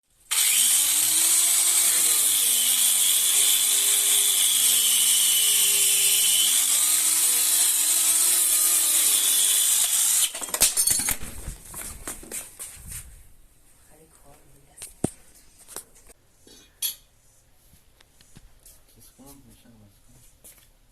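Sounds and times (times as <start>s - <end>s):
power tool on metal: 0.3s - 10.5s.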